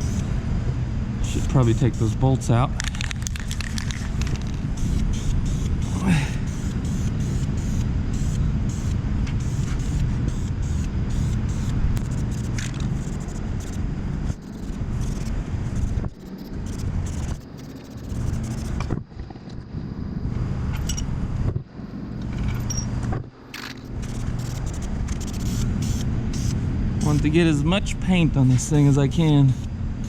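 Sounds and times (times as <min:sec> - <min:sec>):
spray paint hissing: 0:01.2 - 0:02.2, 0:02.8 - 0:18.8, 0:23.8 - 0:27.3, 0:29.5 - 0:29.7.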